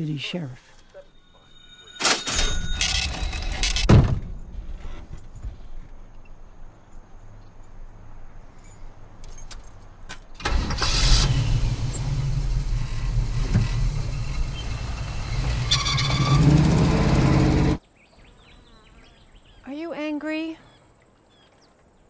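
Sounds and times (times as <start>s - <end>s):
car engine starting and running: 10.4s - 17.8s.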